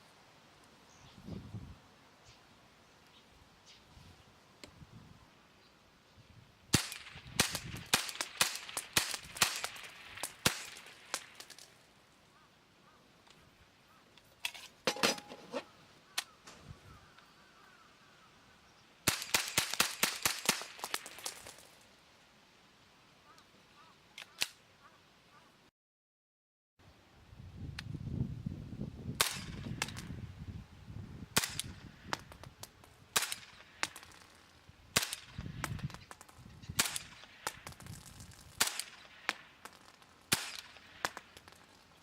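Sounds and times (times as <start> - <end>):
cap gun shots: 6.7 - 11.7, 19.1 - 21.6, 29.2 - 30.1, 31.4 - 32.5, 33.1 - 34.2, 35.0 - 36.2, 36.8 - 37.9, 38.6 - 41.6.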